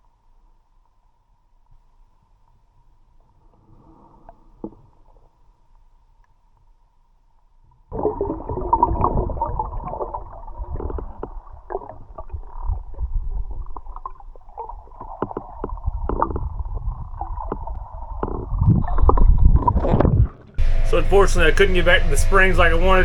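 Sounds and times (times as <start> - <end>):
muffled water gurgling and rumbling: 8.0 - 23.0.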